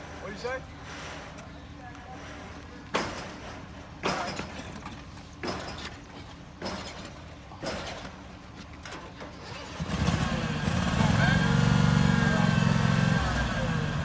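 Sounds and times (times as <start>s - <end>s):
engine idling: 9.7s - 14.0s.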